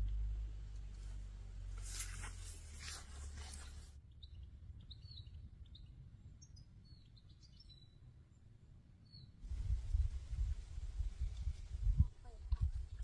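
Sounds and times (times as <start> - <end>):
rustling: 0.7 - 4.0
small birds chirping: 1.8 - 10.0.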